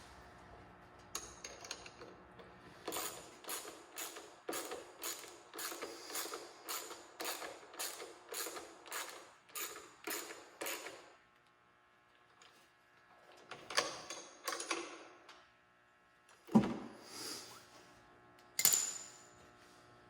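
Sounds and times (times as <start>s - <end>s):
ratchet wrench clicking: 2.9s - 10.9s.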